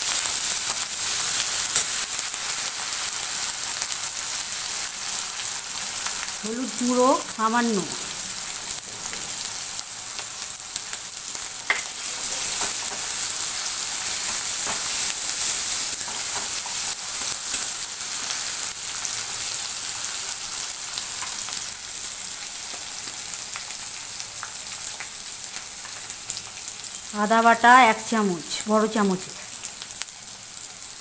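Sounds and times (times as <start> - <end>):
paste sizzling in hot oil: 0.0 - 31.0.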